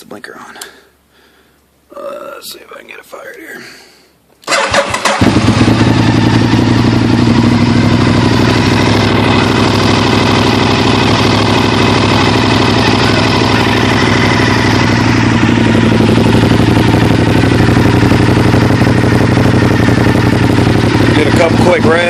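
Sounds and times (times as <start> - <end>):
motorcycle engine idling: 4.6 - 22.0.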